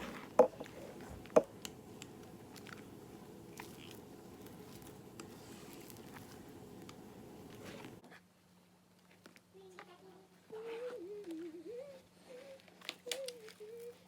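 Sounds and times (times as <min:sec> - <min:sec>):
slime squelching: 0:00.0 - 0:08.0
steady low hum: 0:00.0 - 0:08.0.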